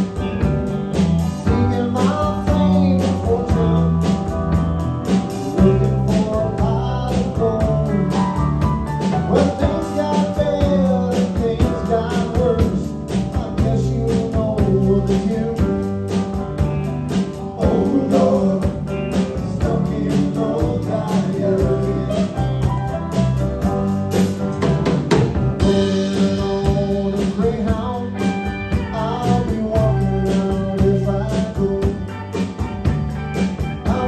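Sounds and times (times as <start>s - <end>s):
drums steady beat: 0.0s - 34.0s
live rock band playing: 0.0s - 34.0s
person singing: 1.4s - 4.2s, 5.4s - 8.4s, 9.2s - 15.8s, 17.6s - 22.7s, 25.6s - 32.6s, 33.7s - 34.0s.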